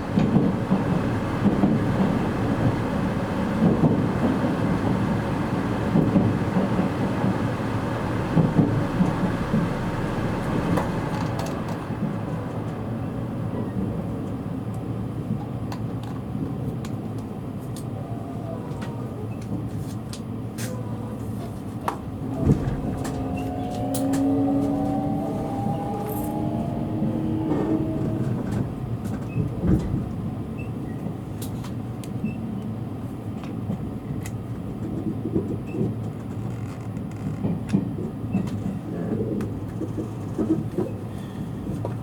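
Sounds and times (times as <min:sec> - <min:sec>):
train running rumble and hiss: 0:00.0 - 0:42.0
train wheel thumps over rail joints: 0:21.9 - 0:24.3.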